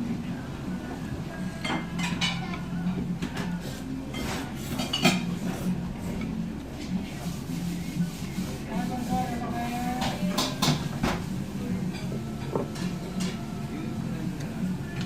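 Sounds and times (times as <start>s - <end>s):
dishes and cutlery clinking: 1.6s - 6.4s, 9.4s - 13.4s
steady low hum: 10.9s - 15.0s.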